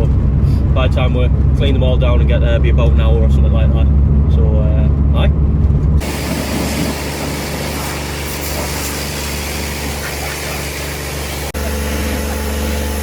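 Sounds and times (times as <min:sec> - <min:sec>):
loud even hiss: 0:06.0 - 0:13.0
motor running: 0:06.0 - 0:13.0.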